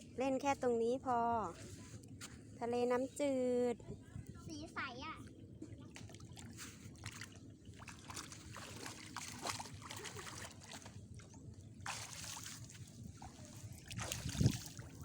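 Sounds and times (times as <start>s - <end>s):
lake water sloshing at shoreline: 5.6s - 15.0s.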